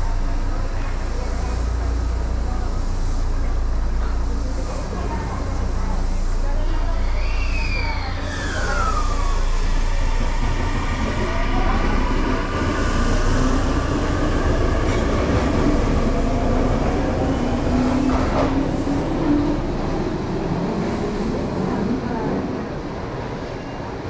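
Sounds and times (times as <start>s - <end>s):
wheels rumbling on rail: 0.0s - 24.0s.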